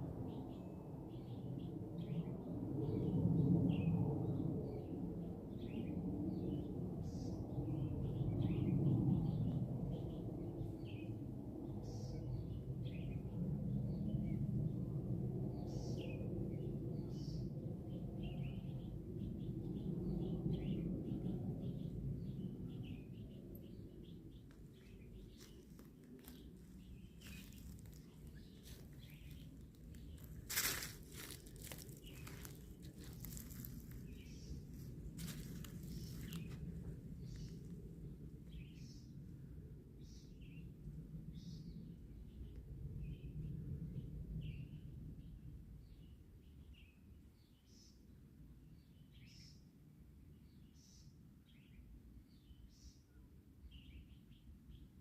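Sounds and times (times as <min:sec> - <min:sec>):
small birds chirping: 0:18.3 - 0:37.8
low rumble: 0:19.0 - 0:39.9.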